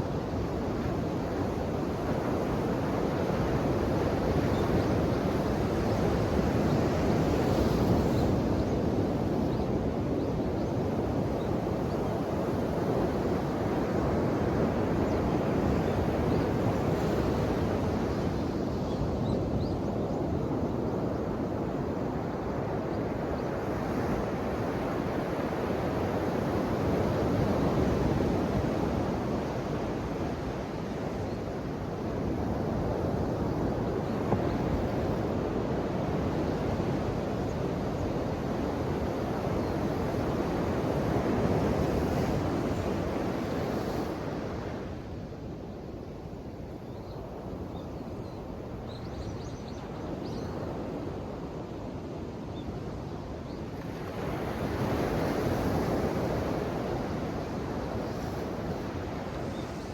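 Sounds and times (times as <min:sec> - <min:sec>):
ocean waves surf: 0:53.7 - 0:59.9.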